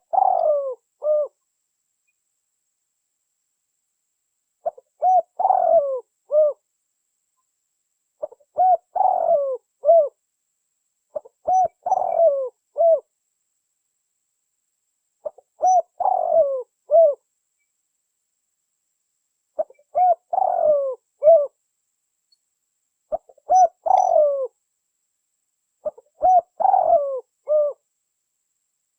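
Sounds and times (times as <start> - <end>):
dove cooing: 0.0 - 1.4, 4.6 - 6.6, 8.2 - 10.2, 11.1 - 13.1, 15.2 - 17.2, 19.6 - 21.6, 23.1 - 24.6, 25.8 - 27.8.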